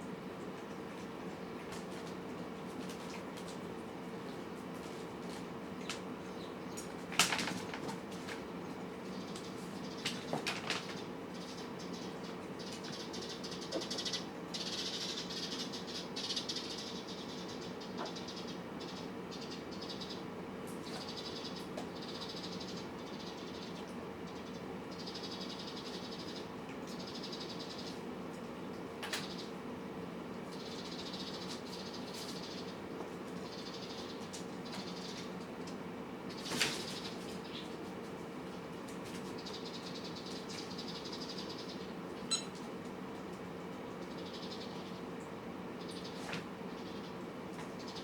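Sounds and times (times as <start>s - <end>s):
cats eating with clicking sounds: 0.0s - 15.0s, 16.8s - 48.0s
faint steady hum: 0.0s - 48.0s
cats chewing and lapping: 0.3s - 6.2s.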